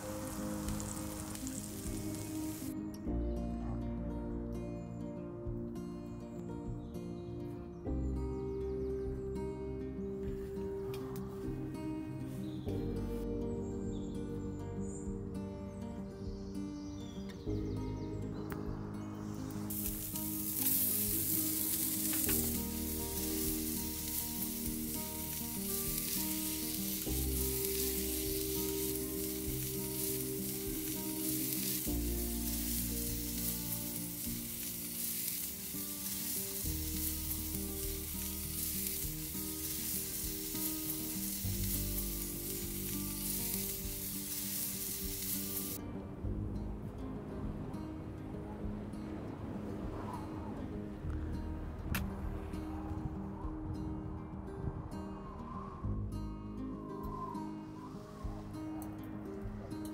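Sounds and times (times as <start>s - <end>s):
food sizzling in a skillet: 0.0s - 2.8s, 19.6s - 45.8s
soft background music chords: 0.0s - 59.9s.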